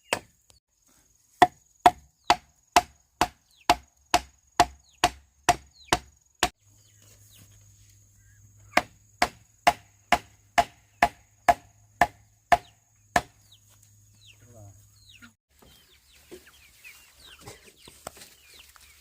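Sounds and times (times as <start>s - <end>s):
blade chopping bamboo: 0.0s - 0.4s, 1.4s - 6.6s, 8.8s - 13.4s.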